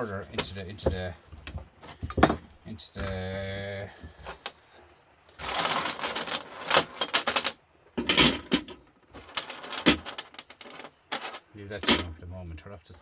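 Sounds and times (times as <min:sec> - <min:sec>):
scrap metal clattering: 0:05.4 - 0:12.2.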